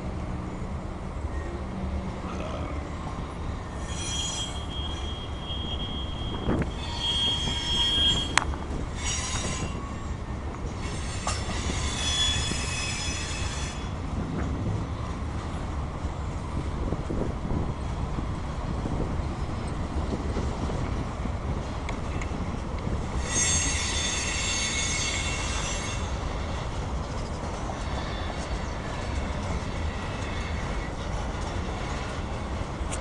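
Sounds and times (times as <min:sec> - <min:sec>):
freight train rumbling past: 0:00.0 - 0:33.0
wheels squealing: 0:03.4 - 0:14.0, 0:23.1 - 0:32.4.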